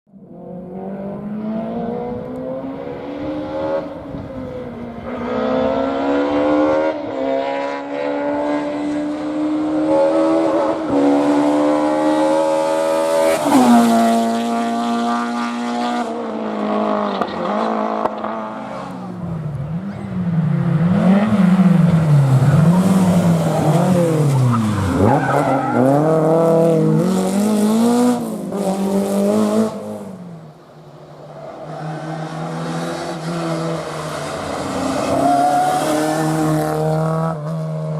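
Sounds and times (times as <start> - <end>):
rally car engine accelerating: 0.2 - 30.4.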